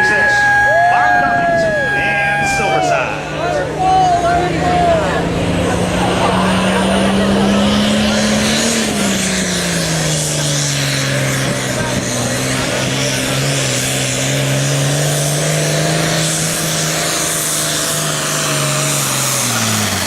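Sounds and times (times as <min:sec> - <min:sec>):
tractor diesel engine at full throttle: 0:00.0 - 0:20.0.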